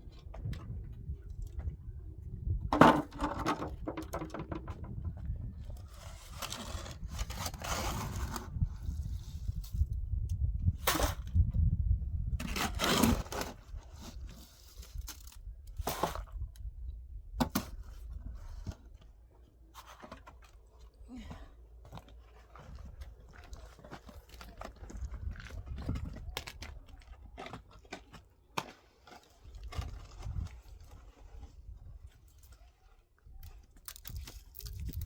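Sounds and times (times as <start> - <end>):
scraping and crunching: 2.7 - 10.0, 12.4 - 16.7, 21.8 - 35.0.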